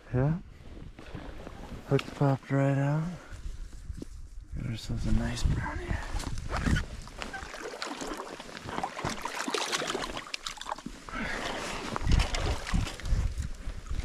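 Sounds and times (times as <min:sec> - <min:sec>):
river water splashing: 0:07.0 - 0:14.0.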